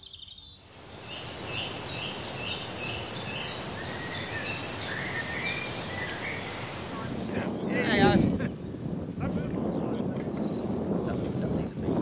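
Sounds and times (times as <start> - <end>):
wind rushing: 0.7 - 12.0.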